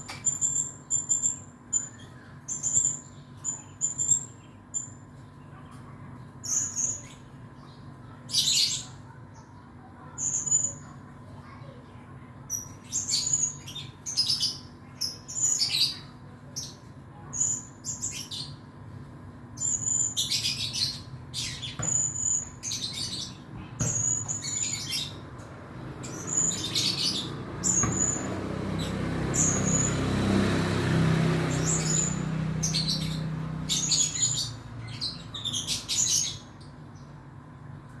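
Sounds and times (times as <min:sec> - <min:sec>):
parrot chirping: 0:26.0 - 0:30.1, 0:31.4 - 0:36.6.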